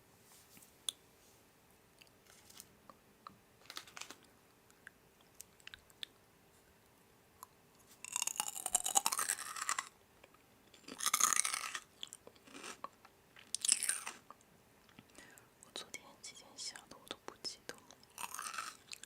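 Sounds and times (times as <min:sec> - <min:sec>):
crunchy food being chewed: 0:07.4 - 0:15.1, 0:17.8 - 0:19.0.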